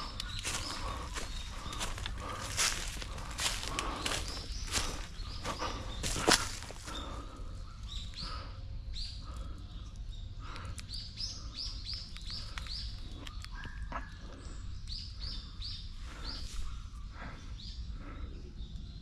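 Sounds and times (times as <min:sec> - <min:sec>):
footsteps crunching dry leaves: 0:00.0 - 0:07.3
bird chirping: 0:00.0 - 0:19.0.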